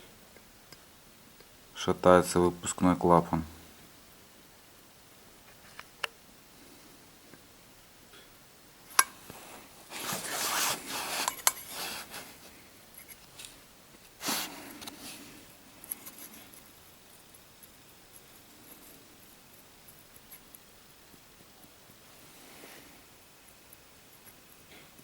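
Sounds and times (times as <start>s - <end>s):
metal parts scraping and rubbing: 9.9s - 13.5s.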